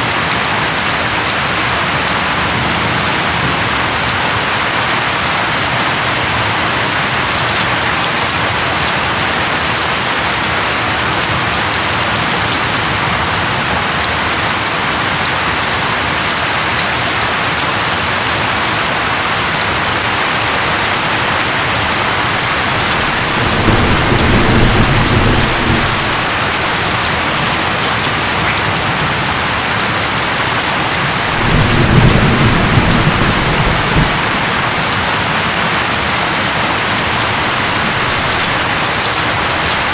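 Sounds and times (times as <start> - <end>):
steady rain: 0.0 - 39.9
low rolls of thunder: 21.0 - 28.4, 31.0 - 34.9.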